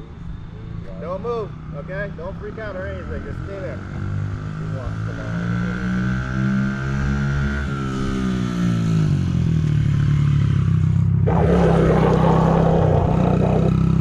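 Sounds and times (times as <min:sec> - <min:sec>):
rough rushing noise: 0:11.2 - 0:14.0.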